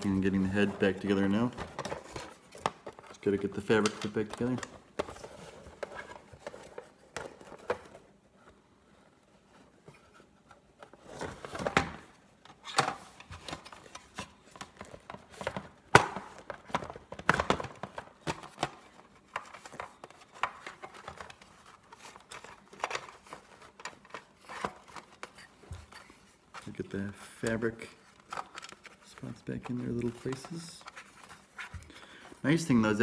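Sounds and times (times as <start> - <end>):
rustling and scraping of plastic parts: 0.0 - 33.0.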